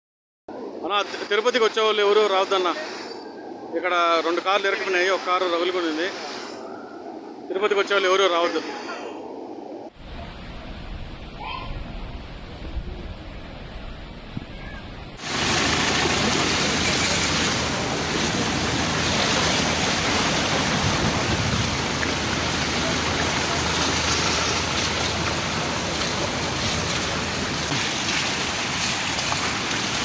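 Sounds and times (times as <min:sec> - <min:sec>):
floodwater and rain rushing: 0:09.9 - 0:30.0.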